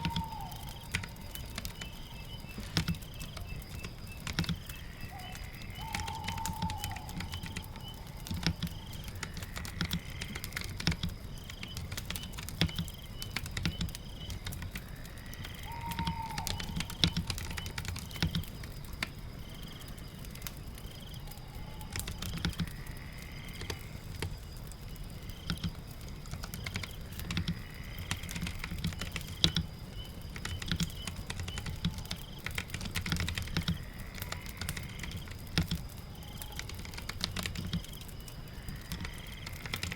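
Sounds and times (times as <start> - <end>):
whistled call: 0.0 - 3.9, 15.6 - 17.7
typing on a keyboard: 0.0 - 22.9, 23.5 - 39.9
rain: 0.0 - 39.9.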